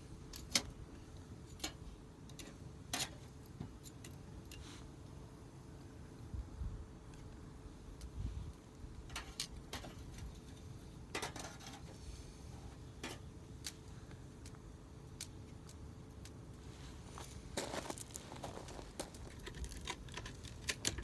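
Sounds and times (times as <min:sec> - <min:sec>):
firewood crackling and popping: 0:12.7 - 0:21.0.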